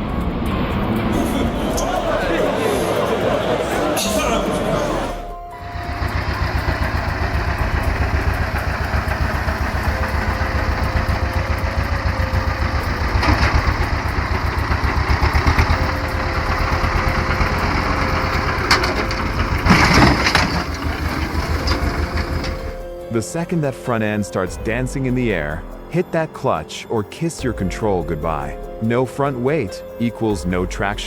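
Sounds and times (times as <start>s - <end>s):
tractor engine running: 0.0s - 23.7s.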